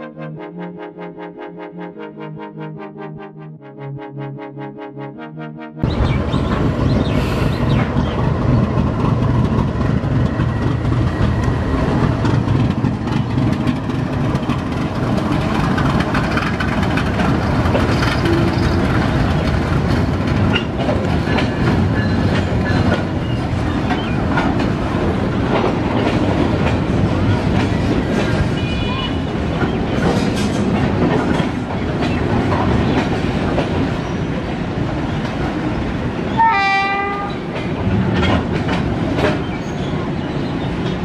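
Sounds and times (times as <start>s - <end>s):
wheels clattering over rail joints: 8.0s - 28.6s.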